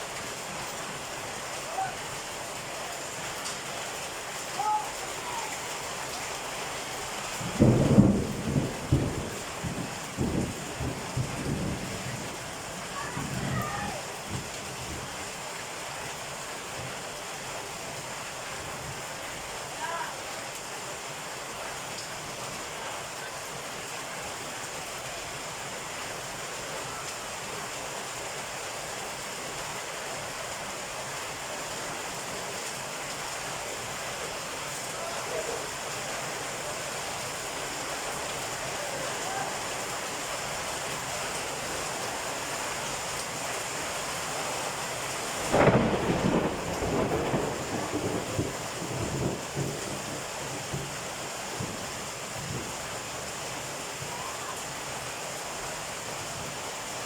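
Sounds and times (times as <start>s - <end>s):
heavy rain: 0.0s - 57.0s
thunder clap: 7.5s - 11.8s, 45.5s - 49.8s.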